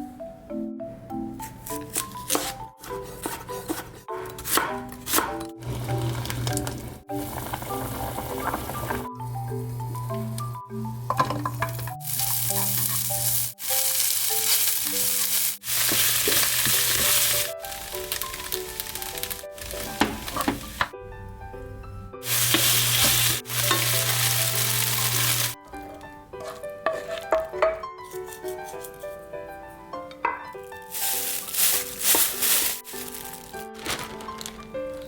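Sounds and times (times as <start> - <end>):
light background music: 0.0 - 35.0
food sizzling in hot oil: 5.7 - 10.3, 11.0 - 20.9, 22.2 - 25.6, 30.9 - 33.6.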